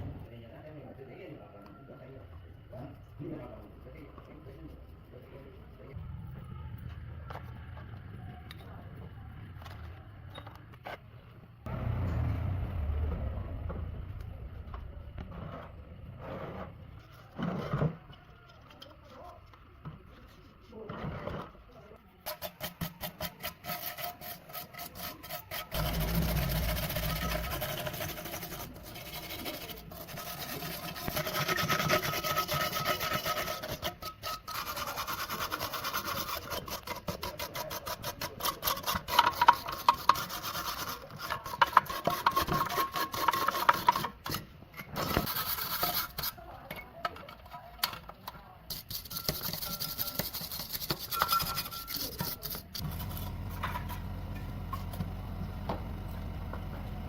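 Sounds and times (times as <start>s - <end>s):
rubbing and scraping: 15.2s - 46.6s, 48.7s - 55.1s.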